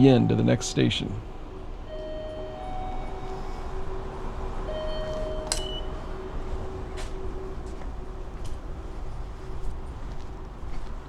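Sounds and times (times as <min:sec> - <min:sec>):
electrical hum: 0:00.0 - 0:11.0
ticket machine beeps: 0:04.7 - 0:06.0.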